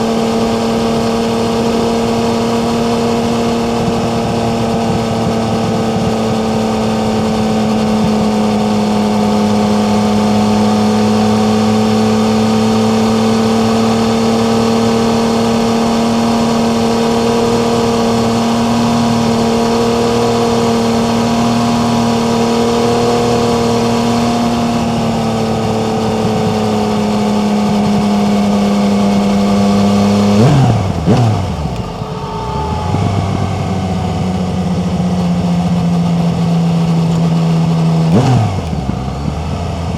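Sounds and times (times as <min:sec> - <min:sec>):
motorcycle engine running: 0:00.0 - 0:39.9
wind noise: 0:30.3 - 0:35.8.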